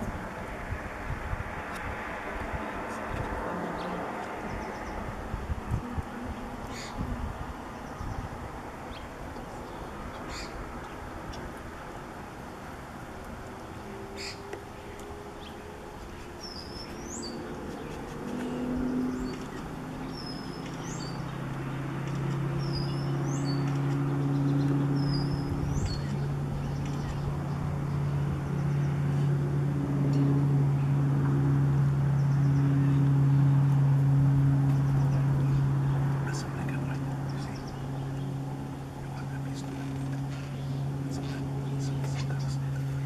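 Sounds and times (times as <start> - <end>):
low motor hum: 0.0 - 43.0
bird chirping: 13.7 - 28.9, 34.7 - 43.0.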